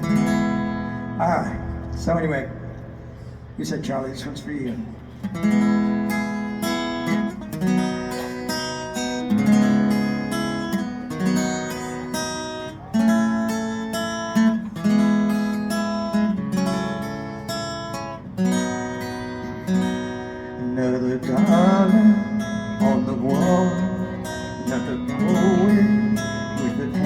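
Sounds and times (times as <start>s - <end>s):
acoustic guitar strumming chords: 0.0s - 3.6s, 5.0s - 27.0s.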